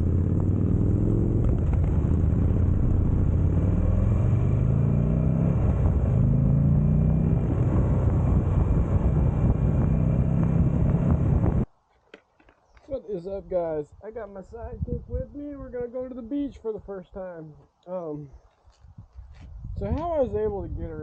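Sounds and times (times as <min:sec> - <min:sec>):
motorcycle engine accelerating: 0:00.0 - 0:11.7
wind rushing over microphone: 0:00.0 - 0:11.7, 0:13.7 - 0:16.4, 0:18.7 - 0:21.0.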